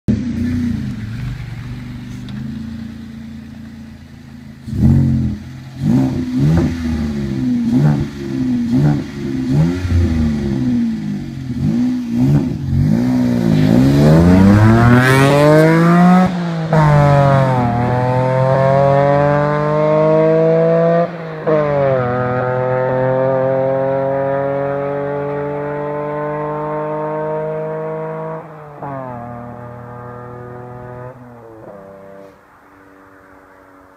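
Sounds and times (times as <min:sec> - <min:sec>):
car engine idling and revving: 0:00.1 - 0:33.9.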